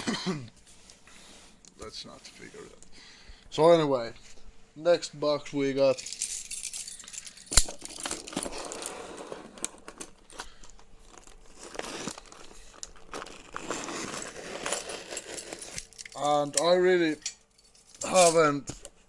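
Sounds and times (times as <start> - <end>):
cardboard box packing rustling: 8.2 - 15.6.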